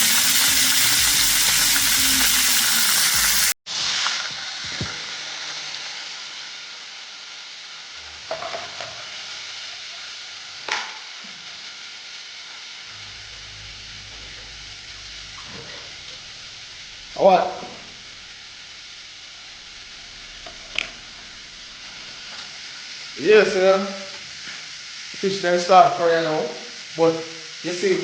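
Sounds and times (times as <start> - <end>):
fish sizzling in hot oil: 0.0 - 28.0.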